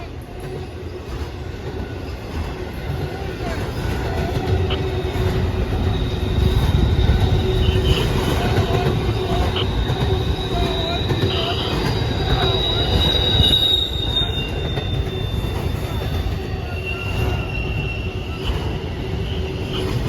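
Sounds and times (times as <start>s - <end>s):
freight train rumbling past: 0.0s - 20.0s
high-pitched wheel squeal: 4.6s - 20.0s.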